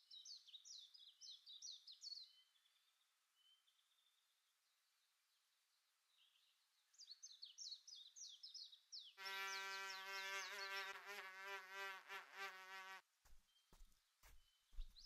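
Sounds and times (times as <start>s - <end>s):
birds chirping: 7.2s - 15.0s
insect buzzing: 9.2s - 13.0s.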